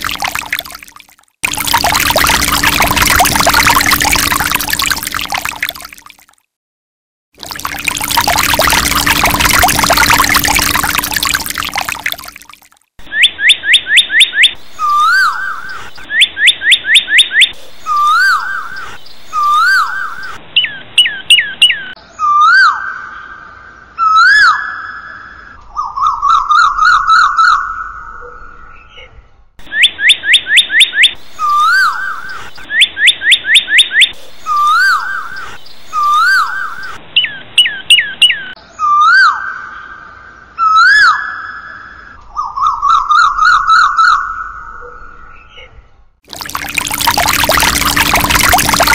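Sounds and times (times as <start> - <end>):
bird song whistled phrases: 13.1 - 23.1.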